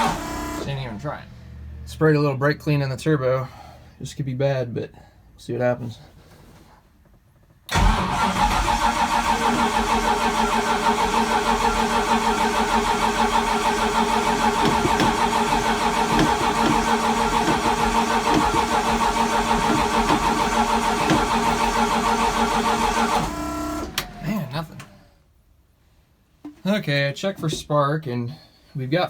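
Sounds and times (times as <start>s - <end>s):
starter motor cranking engine: 0.0s - 1.7s, 7.7s - 25.1s.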